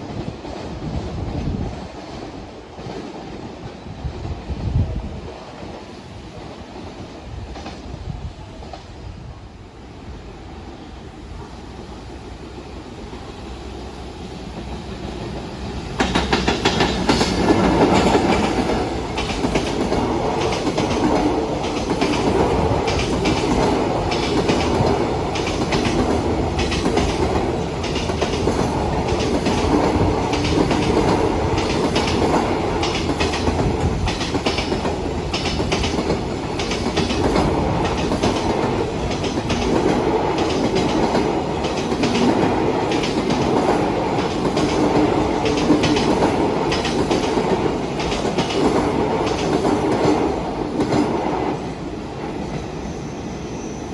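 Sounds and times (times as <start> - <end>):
freight train passing: 0.0 - 53.9
wheels clacking over rail joints: 14.5 - 52.7.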